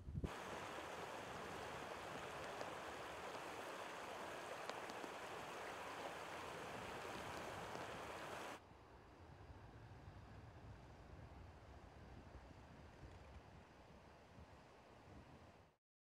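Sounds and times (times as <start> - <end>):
stream rushing over rocks: 0.3 - 8.6.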